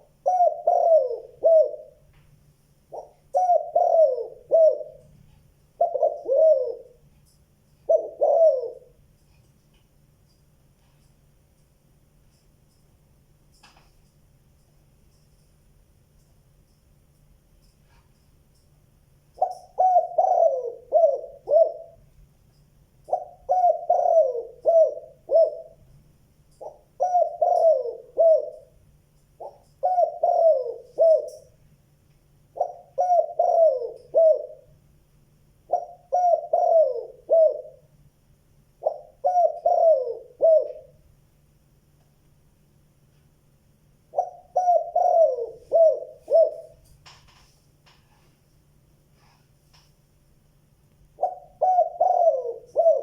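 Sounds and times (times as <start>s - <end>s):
dove cooing: 0.0s - 2.1s, 2.9s - 5.2s, 5.8s - 7.1s, 7.8s - 9.0s, 19.4s - 22.0s, 23.1s - 25.9s, 26.6s - 28.8s, 29.4s - 31.6s, 32.5s - 34.8s, 35.7s - 37.9s, 38.8s - 41.0s, 44.1s - 46.8s, 51.2s - 53.0s.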